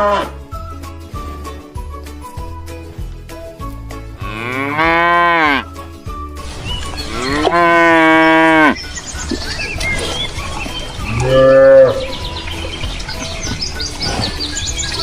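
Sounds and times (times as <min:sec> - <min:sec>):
cow mooing: 0:00.0 - 0:00.4, 0:04.2 - 0:05.7, 0:07.0 - 0:08.8, 0:11.1 - 0:12.2.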